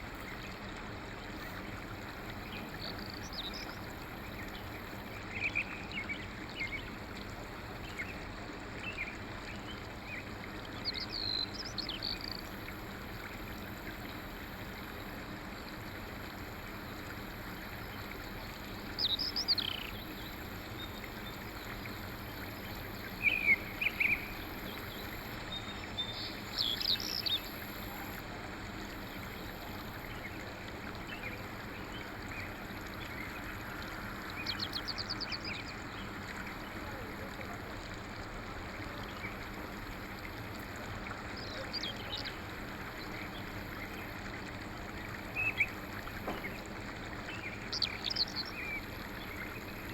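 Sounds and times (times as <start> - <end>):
songbirds chirping and trilling: 47.3 - 49.8.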